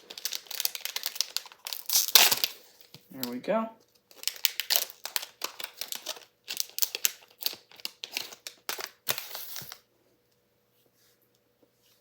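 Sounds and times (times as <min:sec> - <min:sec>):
foil wrapper crinkling: 0:00.0 - 0:09.8
cards being handled: 0:04.1 - 0:09.8.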